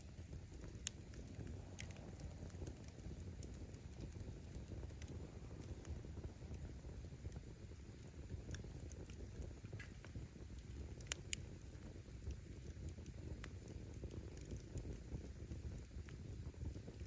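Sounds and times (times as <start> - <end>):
campfire flames rumbling: 0.0 - 17.0
firewood crackling and popping: 0.0 - 17.0.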